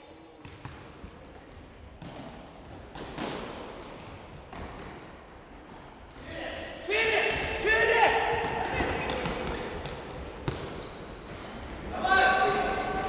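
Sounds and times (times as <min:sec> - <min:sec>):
ball thumping on hall floor: 0:08.4 - 0:11.8.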